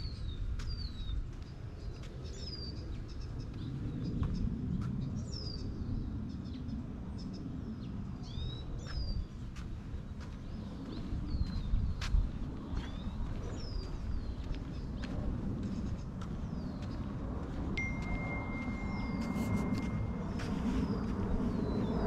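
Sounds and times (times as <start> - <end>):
steady low rumble: 0.0 - 22.0
bird chirping: 17.8 - 22.0.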